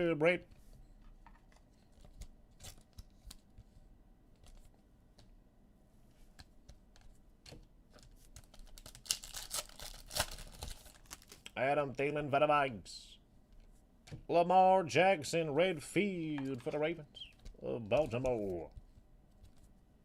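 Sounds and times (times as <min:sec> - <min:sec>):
foil wrappers crinkling: 0:08.3 - 0:11.5
cards clicking and tapping: 0:16.4 - 0:19.7.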